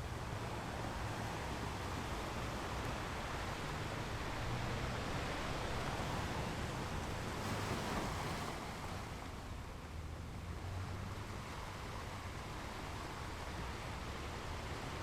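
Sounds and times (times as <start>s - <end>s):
ocean waves washing on shore: 0.0s - 15.0s.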